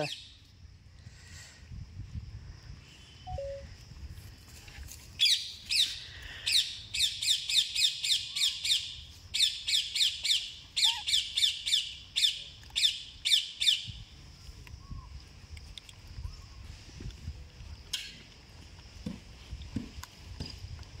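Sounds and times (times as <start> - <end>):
bird chirping: 3.1 - 3.6, 5.2 - 13.9.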